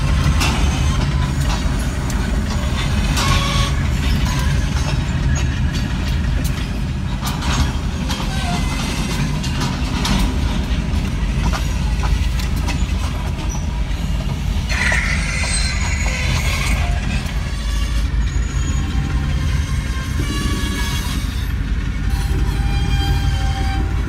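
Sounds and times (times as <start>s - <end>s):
train rumbling past: 0.0s - 24.0s
wheels clicking over rail joints: 0.0s - 24.0s
high-pitched wheel squeal: 14.7s - 21.5s.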